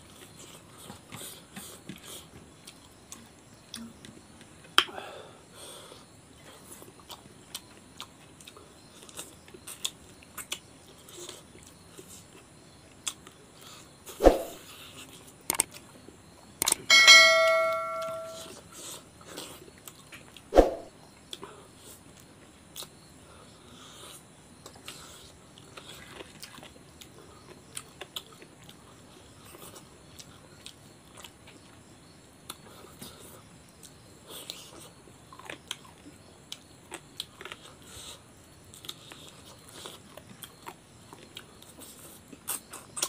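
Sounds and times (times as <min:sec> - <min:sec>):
chewing and wet mouth sounds: 0:06.4 - 0:13.8, 0:23.8 - 0:31.8, 0:32.4 - 0:43.0
ringing clang: 0:16.9 - 0:18.5.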